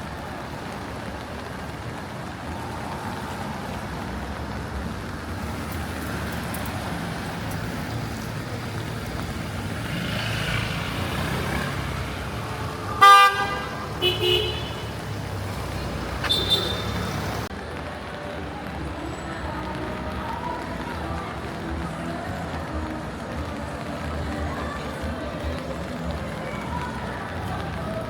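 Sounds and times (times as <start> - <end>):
traffic on wet street: 0.0 - 28.0
car horn honk: 13.0 - 15.0, 16.2 - 17.2.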